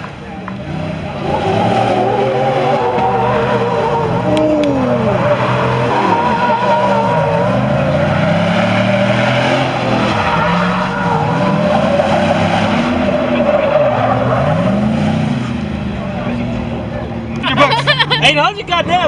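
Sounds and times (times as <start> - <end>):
tires squealing in a burnout: 0.0 - 19.0
engine revving: 0.4 - 18.2.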